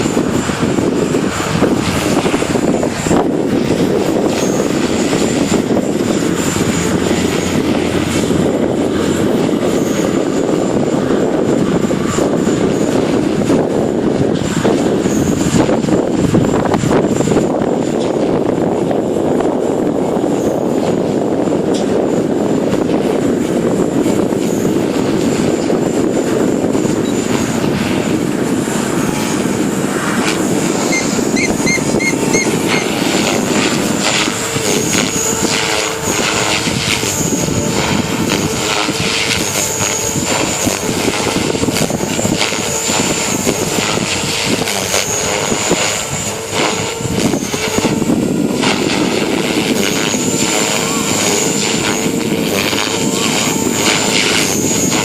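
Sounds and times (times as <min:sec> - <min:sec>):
model helicopter rotor whine: 0:00.0 - 0:55.0
wind buffeting microphone: 0:00.0 - 0:55.0.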